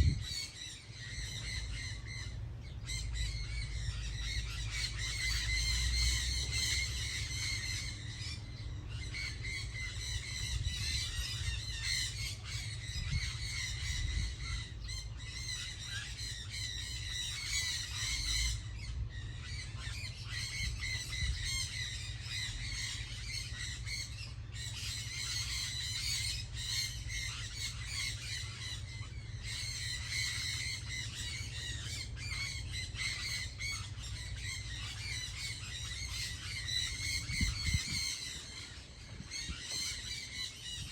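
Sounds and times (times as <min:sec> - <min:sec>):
low rumble: 0:00.0 - 0:00.4
flock of birds squawking: 0:00.0 - 0:40.9.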